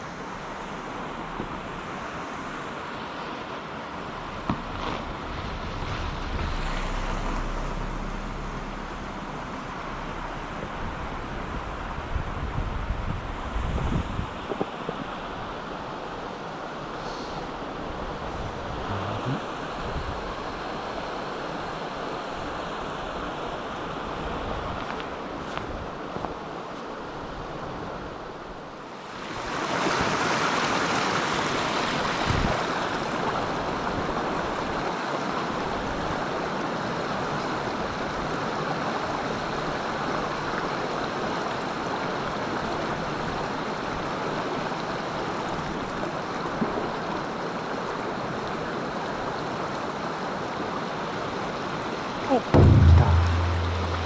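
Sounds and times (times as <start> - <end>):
mountain stream rushing: 0.0 - 54.0
soft knock: 52.6 - 54.0.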